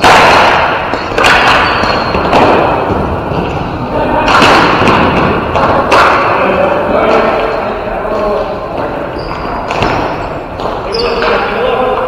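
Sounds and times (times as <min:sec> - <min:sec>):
ball hitting rink boards: 0:00.0 - 0:12.0
echoing rink din: 0:00.0 - 0:12.0.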